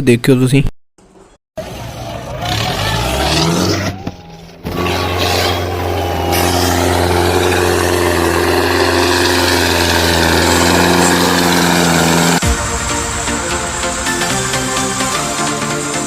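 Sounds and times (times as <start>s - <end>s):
model tractor engine hum: 4.2s - 12.4s.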